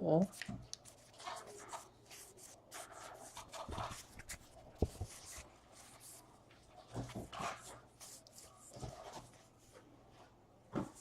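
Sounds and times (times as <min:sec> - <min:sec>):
cards sliding and rubbing: 0:00.4 - 0:06.2.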